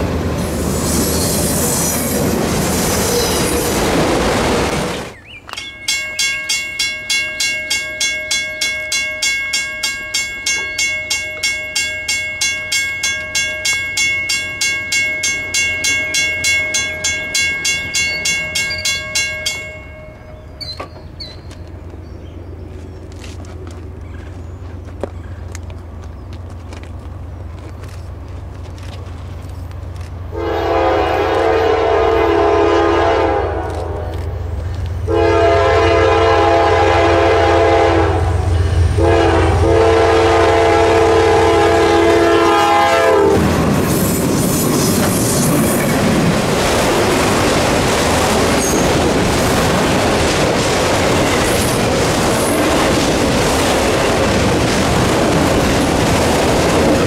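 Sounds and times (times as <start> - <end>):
train wheels rumbling on rails: 0.0 - 57.0
locomotive air horn blasts: 30.3 - 34.1, 35.1 - 43.4.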